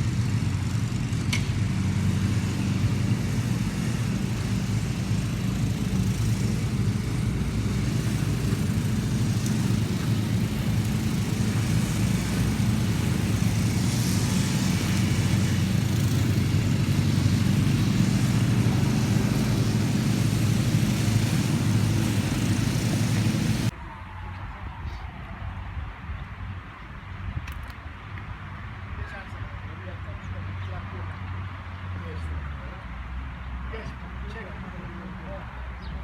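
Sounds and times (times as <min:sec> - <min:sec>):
loud engine drone: 0:00.0 - 0:24.2.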